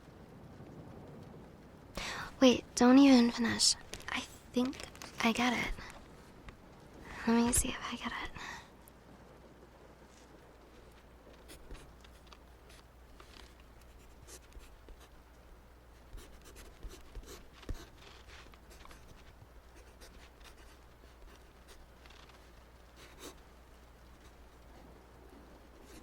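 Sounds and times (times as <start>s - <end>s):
pen scratching on paper: 11.4s - 15.1s, 16.0s - 22.3s, 23.0s - 23.4s, 25.8s - 26.0s.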